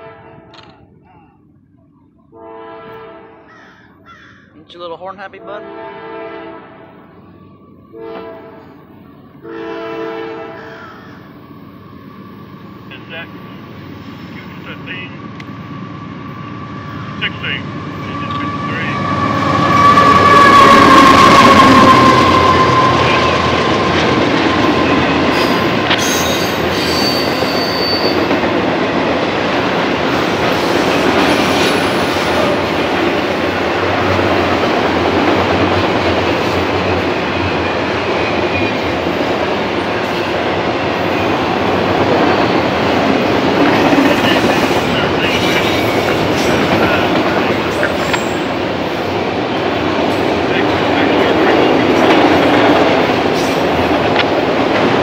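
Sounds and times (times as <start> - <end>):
locomotive horn: 0.0 - 0.7, 2.3 - 3.5, 5.3 - 7.2, 7.9 - 10.8, 18.0 - 28.3
train wheels rumbling and rattling: 10.6 - 55.0
wheel squeals: 18.3 - 28.4, 45.3 - 48.5.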